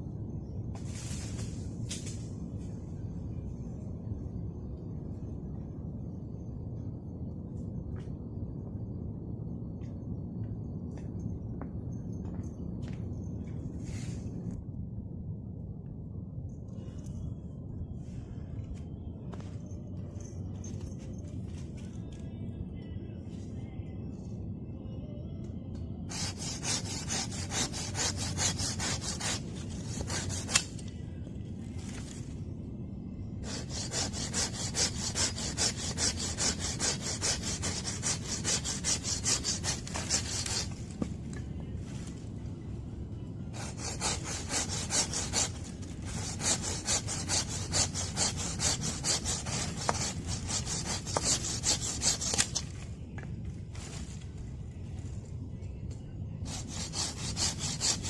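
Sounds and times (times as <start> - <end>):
hand saw cutting wood: 26.1 - 30.8, 33.4 - 40.8, 43.6 - 52.6, 56.5 - 58.0.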